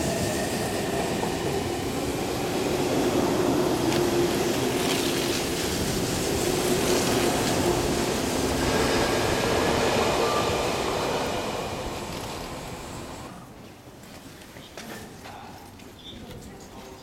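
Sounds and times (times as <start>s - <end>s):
wheels rumbling on rail: 0.0s - 13.4s.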